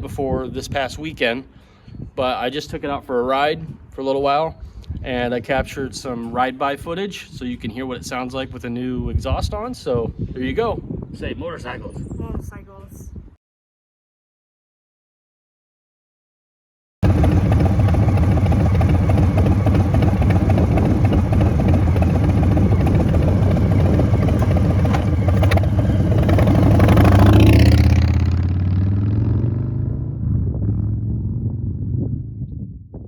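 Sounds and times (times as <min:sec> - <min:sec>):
motorcycle riding past: 0:17.0 - 0:32.4.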